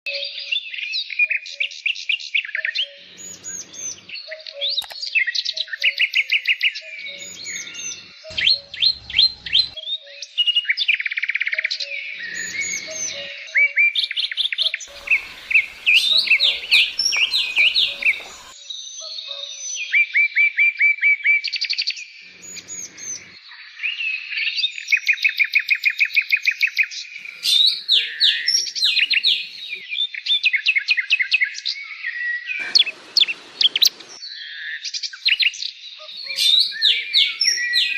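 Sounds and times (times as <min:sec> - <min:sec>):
songbird singing trills: 0:00.1 - 0:18.6, 0:26.5 - 0:30.4, 0:35.2 - 0:37.9.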